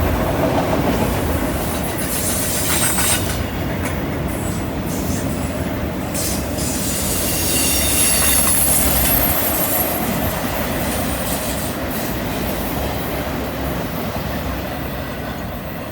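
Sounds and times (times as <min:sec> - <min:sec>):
train wheels rumbling on rail: 0:00.0 - 0:15.9
wheel flanges squealing: 0:06.2 - 0:10.4.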